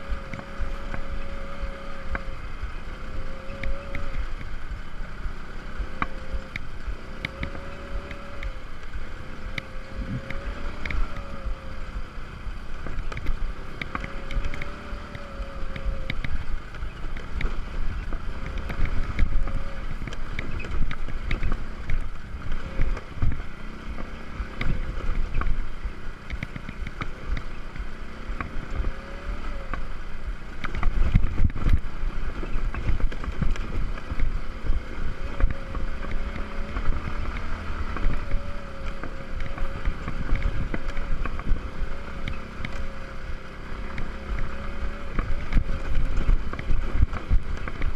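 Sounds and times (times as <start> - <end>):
moped engine running: 0.0 - 47.9
wind buffeting microphone: 0.0 - 47.9.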